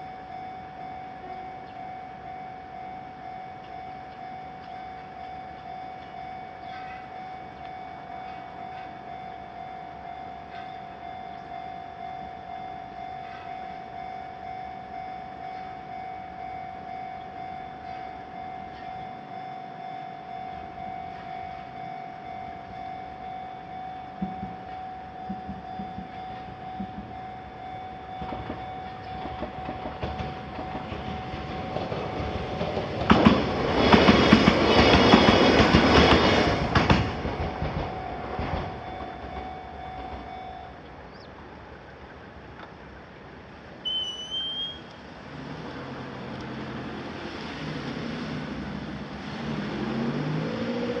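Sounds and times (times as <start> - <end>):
electric train passing: 0.0 - 51.0
level-crossing warning bell: 0.0 - 51.0
wheel clicks over rail joints: 28.2 - 40.3
car engine revving: 45.3 - 51.0.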